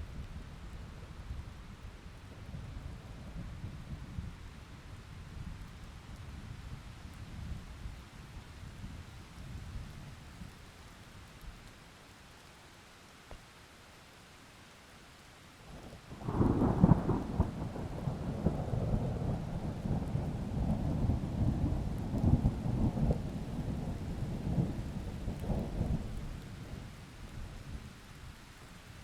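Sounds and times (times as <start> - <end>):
faint rain hiss: 0.0 - 29.0
thunder: 16.2 - 26.0.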